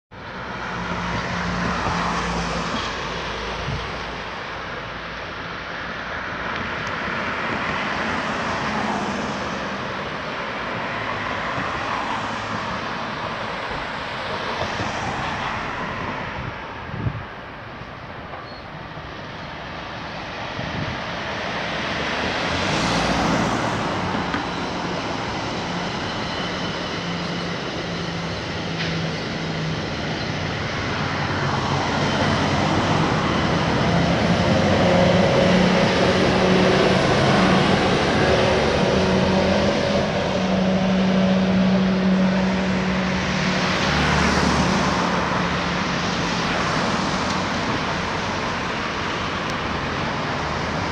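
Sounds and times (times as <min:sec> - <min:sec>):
train passing low drone: 0:00.1 - 0:50.9
cars swishing past: 0:20.5 - 0:50.9.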